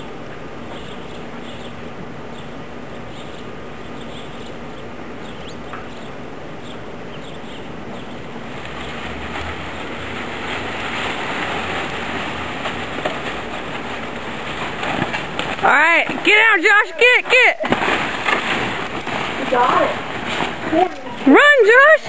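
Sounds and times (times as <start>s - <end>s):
bird chirps: 0.7s - 8.2s.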